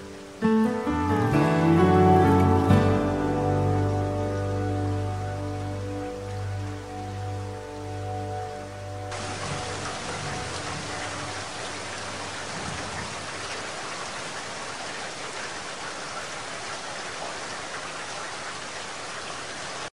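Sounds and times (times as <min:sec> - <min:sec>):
low music notes: 0:00.0 - 0:13.6
steady rain falling: 0:00.0 - 0:19.9.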